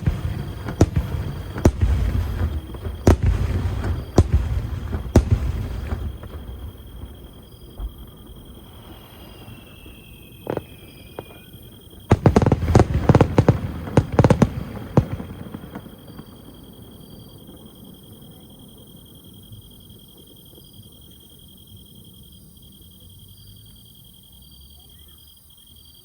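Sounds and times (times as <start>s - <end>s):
firework whistle: 0.0s - 19.1s
firework bangs: 0.0s - 19.2s
high insect trill: 0.1s - 14.4s.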